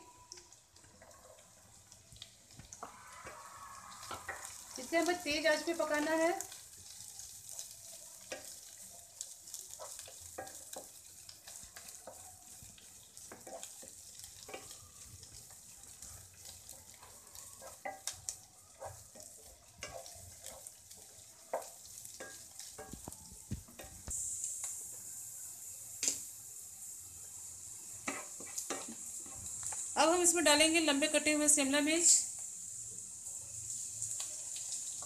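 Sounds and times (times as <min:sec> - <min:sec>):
vegetables sizzling in hot oil: 0:00.0 - 0:35.0
stirring clicks and scrapes: 0:16.1 - 0:24.1.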